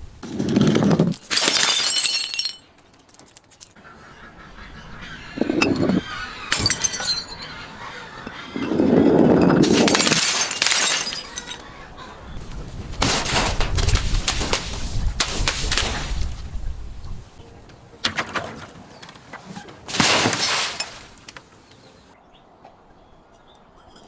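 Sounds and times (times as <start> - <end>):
glass bottles breaking and crunching: 0.3 - 3.4, 6.5 - 7.5, 9.4 - 11.6, 13.0 - 14.6, 19.9 - 21.2.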